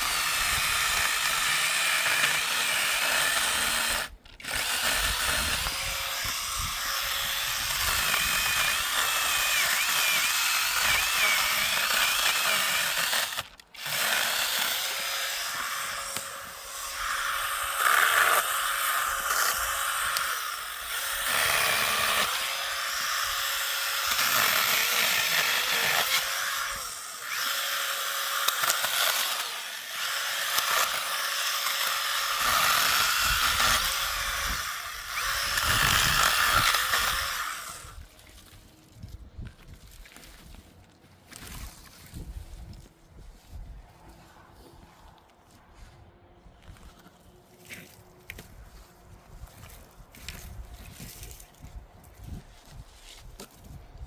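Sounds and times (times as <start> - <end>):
small motor running: 0.0 - 38.6.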